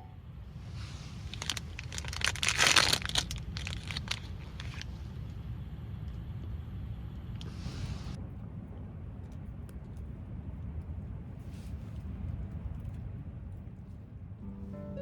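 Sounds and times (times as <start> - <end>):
rustling and crinkling: 0.9 - 5.2, 8.5 - 14.4.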